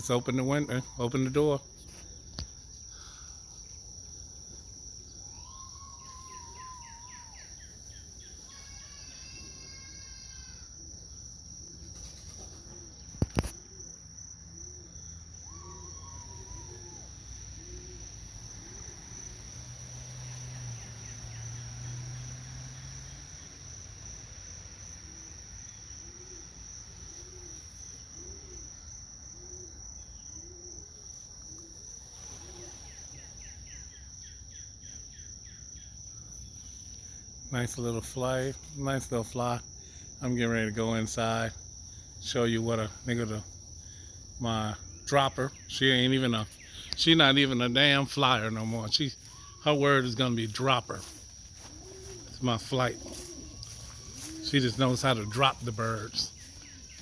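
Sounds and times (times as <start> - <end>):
crickets chirping: 0.0 - 57.0
bird calls: 5.1 - 8.9, 48.2 - 57.0.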